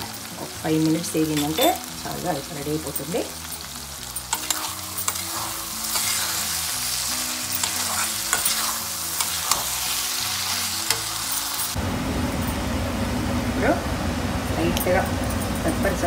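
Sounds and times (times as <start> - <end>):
meat sizzling in a pan: 0.0 - 11.8
steel spoon scraping a pan: 2.9 - 11.8.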